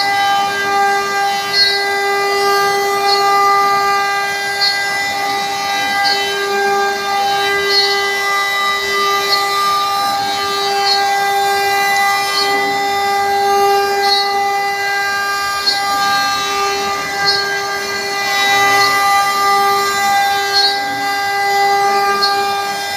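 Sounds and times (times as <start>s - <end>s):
router spindle whine: 0.0s - 22.9s.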